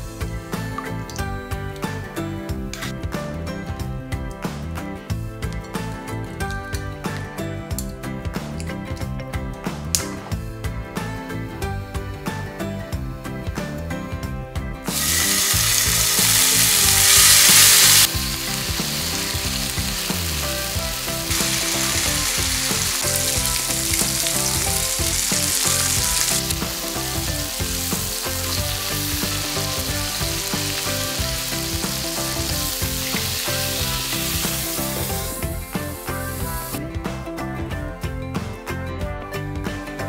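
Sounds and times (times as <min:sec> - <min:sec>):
chicken sizzling in hot oil: 0:14.9 - 0:36.8.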